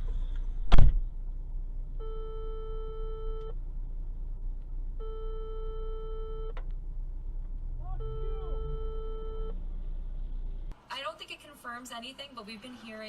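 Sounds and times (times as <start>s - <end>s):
long steady beeps: 2.0s - 3.6s, 5.0s - 6.6s, 7.8s - 9.6s.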